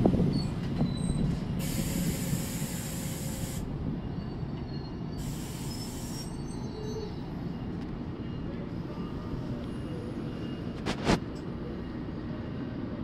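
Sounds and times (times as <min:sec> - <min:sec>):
train rumbling: 0:00.0 - 0:13.0
air hiss: 0:01.6 - 0:03.6, 0:05.2 - 0:06.3.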